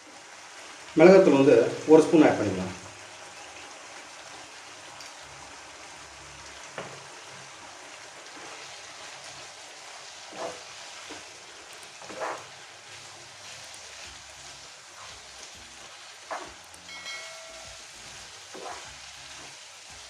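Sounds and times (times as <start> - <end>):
chicken sizzling in oil: 0.0 - 20.0
spoon scraping a pan: 10.3 - 11.3, 12.0 - 12.6, 15.0 - 19.6.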